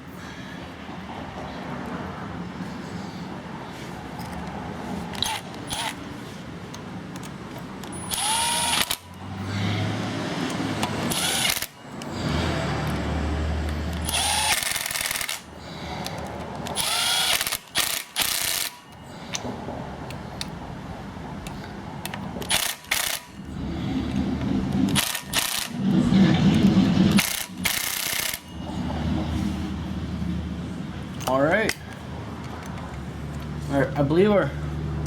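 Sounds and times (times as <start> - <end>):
impact driver whining: 7.9 - 15.5, 16.6 - 18.9, 24.4 - 28.5.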